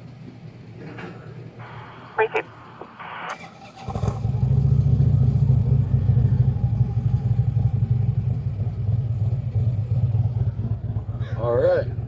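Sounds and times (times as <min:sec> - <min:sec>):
vehicle engine rumbling: 0:00.1 - 0:12.0.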